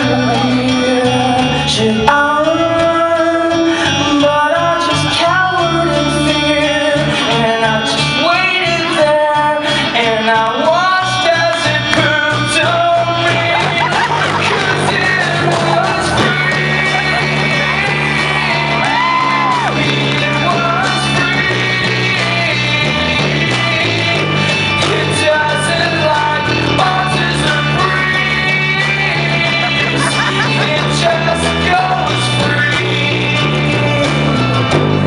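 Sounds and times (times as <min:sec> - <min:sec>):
guitar chords: 0:00.0 - 0:35.0
steady bass line: 0:00.0 - 0:35.0
voices singing and shouting: 0:00.0 - 0:35.0.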